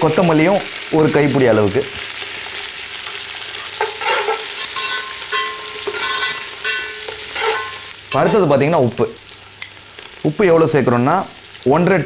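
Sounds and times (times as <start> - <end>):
onions sizzling in a pot: 0.0 - 12.0
metal ladle scraping a pot: 3.6 - 8.3.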